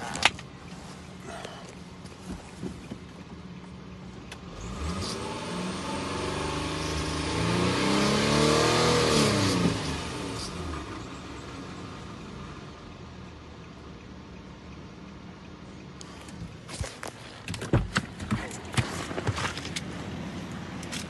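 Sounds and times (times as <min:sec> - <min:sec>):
car engine revving: 0:04.3 - 0:12.8.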